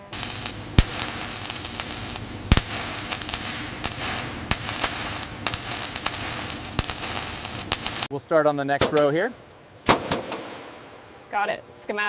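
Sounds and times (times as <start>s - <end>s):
sharp crackles and pops: 0.0s - 8.1s
steady hiss: 0.0s - 10.6s.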